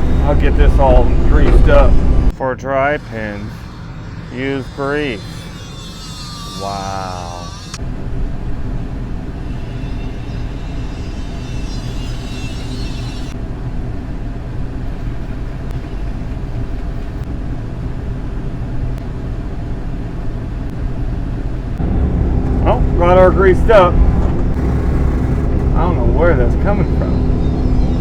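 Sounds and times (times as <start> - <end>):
faint wavering high squeal: 0.0 - 2.0, 2.6 - 13.5, 21.0 - 28.0
diesel engine running: 0.0 - 5.4, 13.3 - 28.0.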